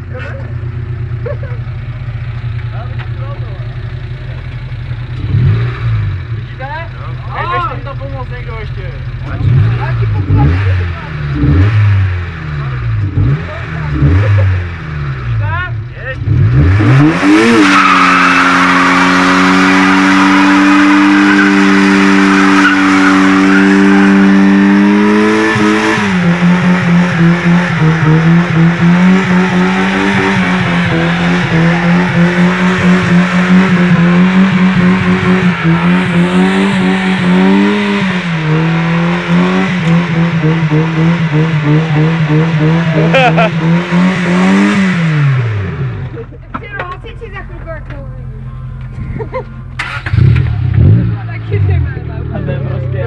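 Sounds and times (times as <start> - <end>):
car engine at high revs: 0.0 - 53.0
engine bouncing off rev limiter: 9.0 - 53.0.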